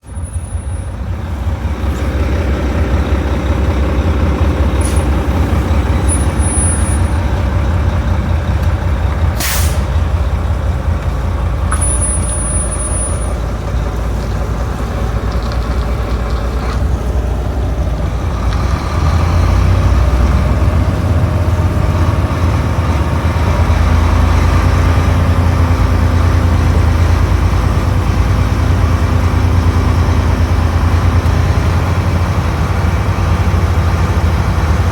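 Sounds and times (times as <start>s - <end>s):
diesel truck engine running: 0.0s - 34.9s
air brakes hissing: 4.6s - 7.3s, 9.4s - 10.3s.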